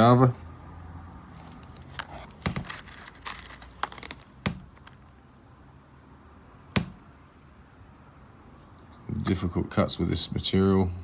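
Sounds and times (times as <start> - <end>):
stones clicking and tapping: 1.6 - 5.1.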